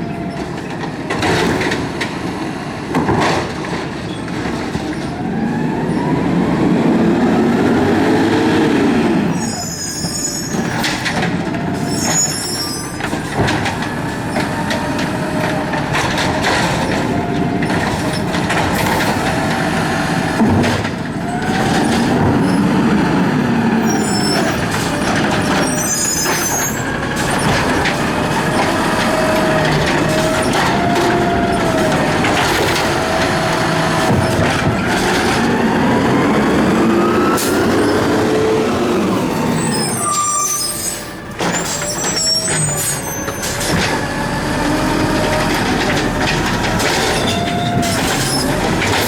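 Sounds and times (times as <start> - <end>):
garbage truck engine revving: 0.0 - 49.0.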